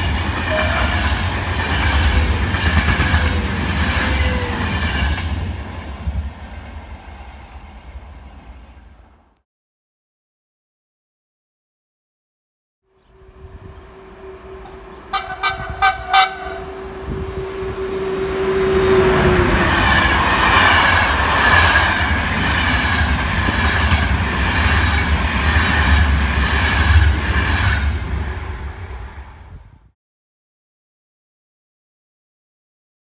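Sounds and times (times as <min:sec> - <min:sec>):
train horn toots: 0:00.0 - 0:05.1, 0:13.1 - 0:19.8
train rushing past: 0:00.0 - 0:09.3, 0:13.1 - 0:29.9.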